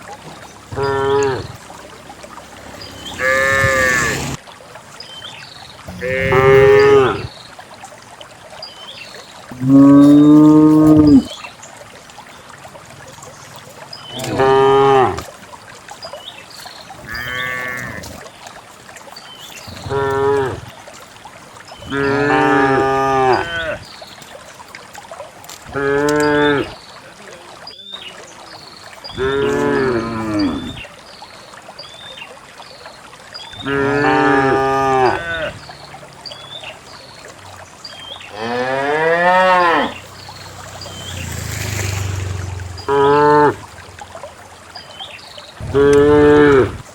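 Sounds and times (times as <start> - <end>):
cows mooing: 0.7 - 4.4, 5.9 - 7.3, 9.6 - 11.3, 14.1 - 15.2, 17.0 - 18.1, 21.9 - 23.8, 25.7 - 26.7, 29.1 - 30.6, 33.6 - 35.6, 38.3 - 43.8, 45.7 - 46.8.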